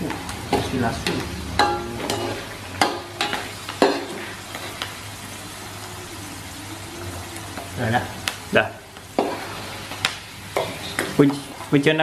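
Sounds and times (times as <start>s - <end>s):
oil sizzling in a wok: 0.0s - 12.0s
metal spatula scraping a wok: 0.5s - 4.8s, 9.2s - 10.0s.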